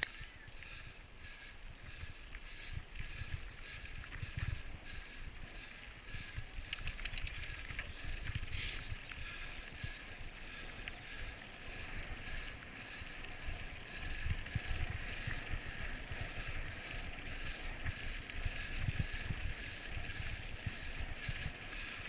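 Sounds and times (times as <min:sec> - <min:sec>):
wind buffeting microphone: 0:00.0 - 0:22.0
quick clicks: 0:06.6 - 0:09.3.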